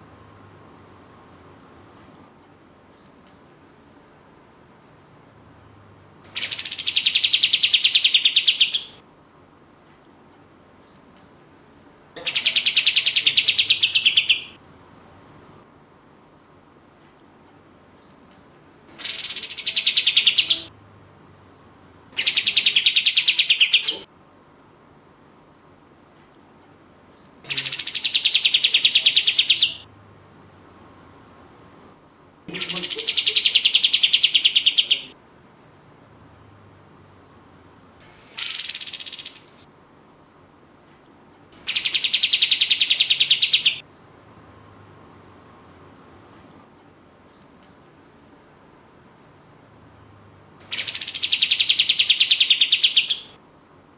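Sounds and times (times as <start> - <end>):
songbird trilling: 6.4 - 9.0, 12.2 - 14.6, 19.0 - 20.7, 22.2 - 24.0, 27.5 - 29.8, 32.5 - 35.1, 38.4 - 39.6, 41.6 - 43.8, 50.6 - 53.4.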